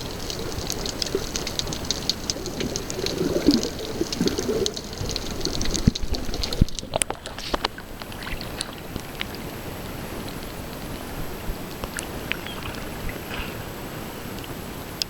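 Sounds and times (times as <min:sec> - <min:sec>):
faint underwater clicks: 0:00.0 - 0:13.6
underwater water wash: 0:00.0 - 0:15.0.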